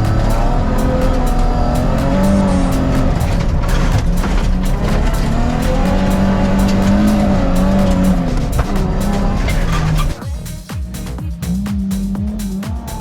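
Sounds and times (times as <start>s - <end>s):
car engine revving hard: 0.0s - 10.2s.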